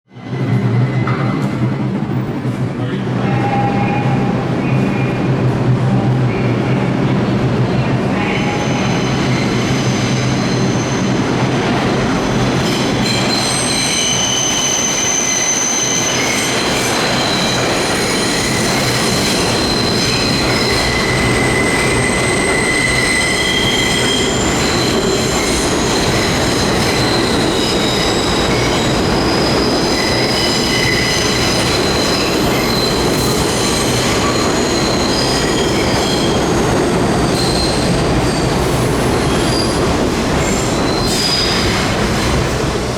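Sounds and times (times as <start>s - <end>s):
train wheels squealing: 8.2s - 11.3s, 12.2s - 42.4s.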